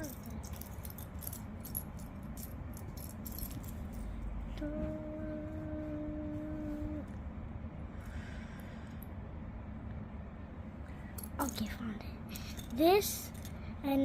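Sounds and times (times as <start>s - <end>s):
plastic pieces rattling: 0.0s - 4.1s
person humming a note: 4.5s - 7.2s.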